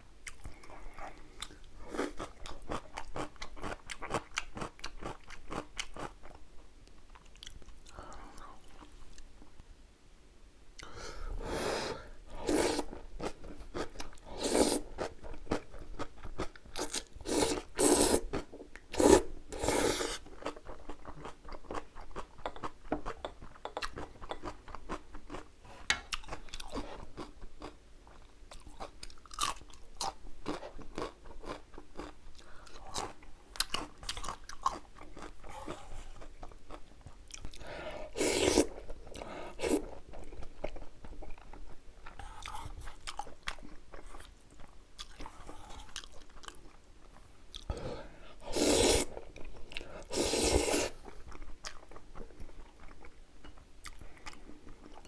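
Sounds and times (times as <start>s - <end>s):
chewing and crunching noodles: 0.2s - 6.4s, 12.3s - 47.8s, 48.5s - 55.0s.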